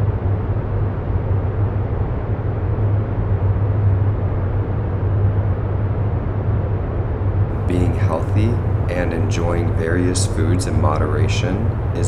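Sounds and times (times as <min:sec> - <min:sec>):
low rumbling noise: 0:00.0 - 0:12.0
deep hum: 0:07.5 - 0:12.0.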